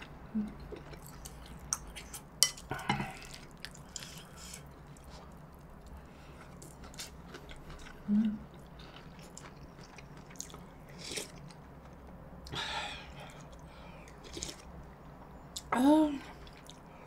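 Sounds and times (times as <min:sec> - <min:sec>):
close chewing with wet clicks: 0:03.3 - 0:11.6.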